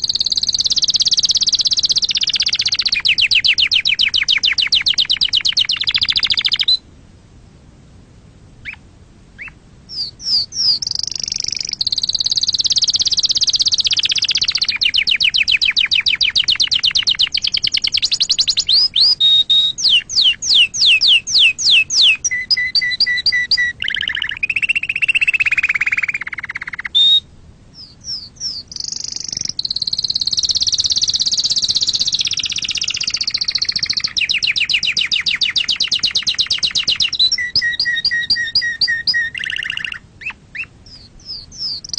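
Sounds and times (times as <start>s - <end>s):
canary singing: 0.0s - 6.9s, 8.6s - 41.9s.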